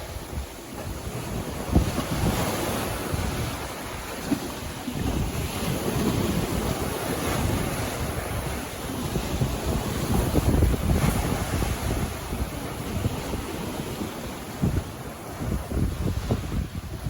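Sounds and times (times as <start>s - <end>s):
sea waves breaking on beach: 0.0s - 17.0s
wind buffeting microphone: 0.0s - 17.0s.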